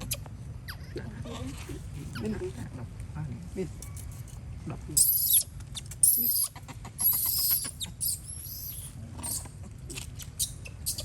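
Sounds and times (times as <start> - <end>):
monkeys squealing: 0.0 - 1.0, 5.0 - 11.0.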